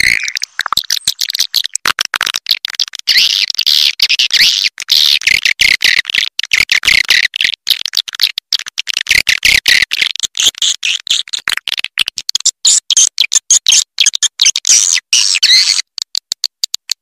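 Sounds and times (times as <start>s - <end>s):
recorded bird chirps and twitters: 0.0s - 1.8s, 2.6s - 6.1s, 9.6s - 11.5s, 12.3s - 16.8s.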